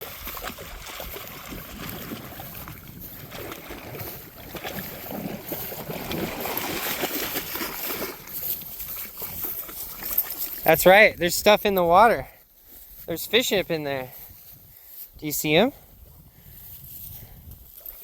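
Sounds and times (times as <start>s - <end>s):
water sloshing and lapping: 0.0s - 11.0s.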